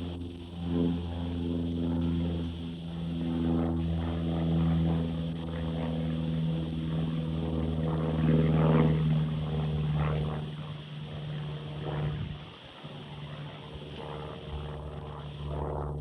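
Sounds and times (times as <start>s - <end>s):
aircraft engine drone: 0.0s - 16.0s.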